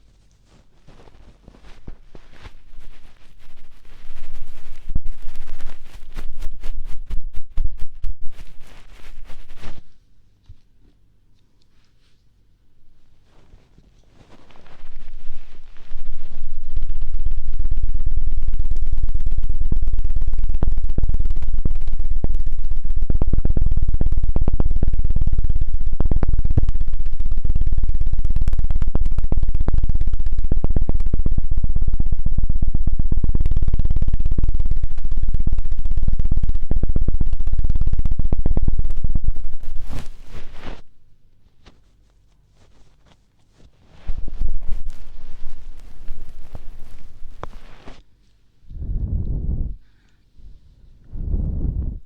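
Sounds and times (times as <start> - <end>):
rapid chopping thumps on microphone: 37.0 - 40.9.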